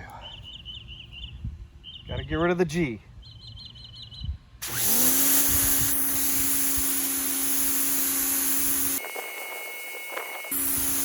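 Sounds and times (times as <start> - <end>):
pressure washer motor whine: 4.6 - 11.0
water jet spraying concrete: 4.6 - 11.0.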